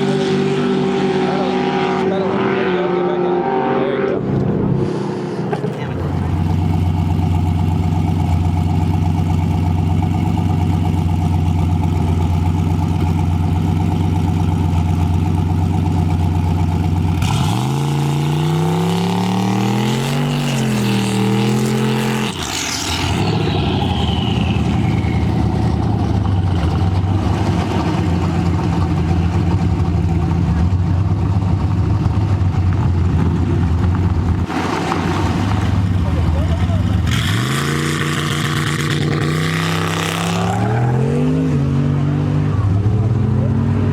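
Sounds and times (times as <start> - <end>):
car engine accelerating: 0.0 - 43.9
turbo whine spooling down: 20.4 - 27.2.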